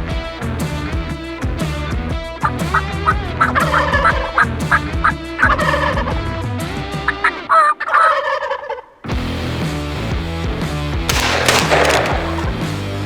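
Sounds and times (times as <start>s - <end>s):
turkey gobbling: 7.3s - 8.9s.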